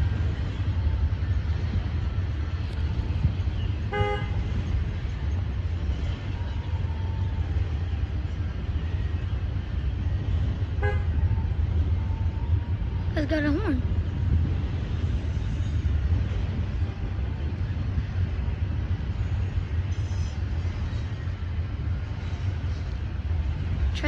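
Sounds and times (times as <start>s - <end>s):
low rumble of vehicles: 0.0s - 24.0s
vehicle horn toot: 3.9s - 4.5s, 10.8s - 11.2s.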